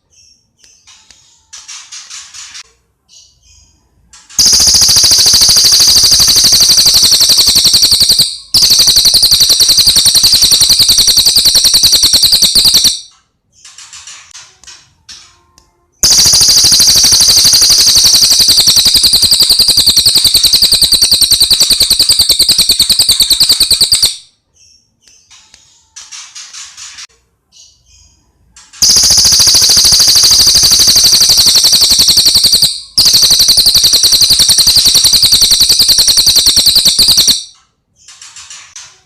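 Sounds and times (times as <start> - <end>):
bird rattling trills: 4.4 - 13.0, 16.0 - 24.2, 28.8 - 37.4.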